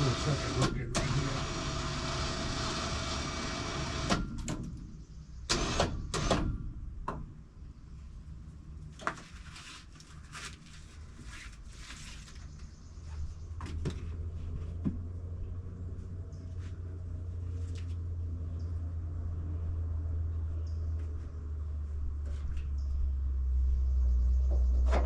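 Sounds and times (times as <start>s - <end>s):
winch motor running: 0.0s - 4.3s
low hum: 12.2s - 25.0s.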